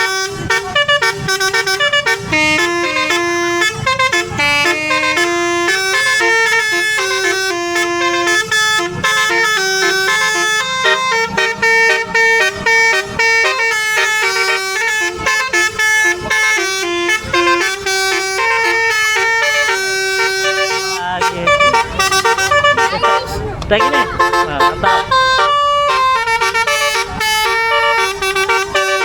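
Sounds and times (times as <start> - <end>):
air horn playing melody: 0.0 - 29.0.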